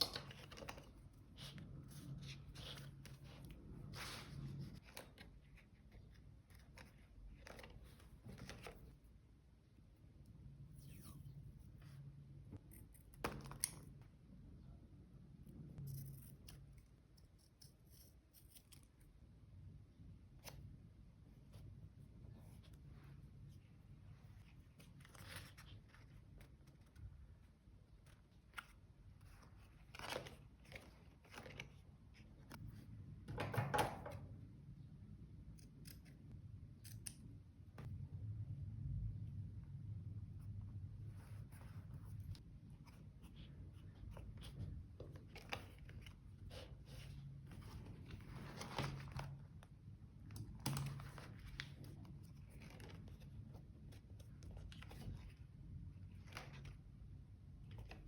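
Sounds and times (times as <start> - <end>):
paper rustling and crinkling: 24.1 - 32.6, 41.2 - 49.6, 50.3 - 56.9.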